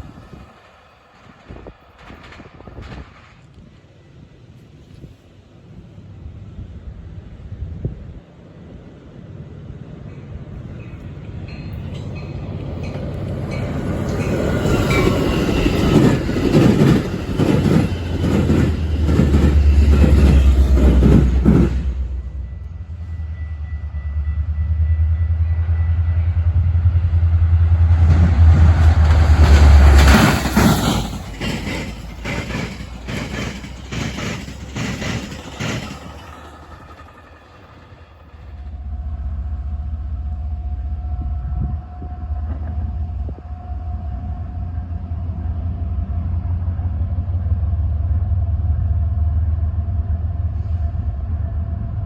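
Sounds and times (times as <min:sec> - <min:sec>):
train wheels clattering: 0:10.1 - 0:22.0, 0:28.0 - 0:38.6.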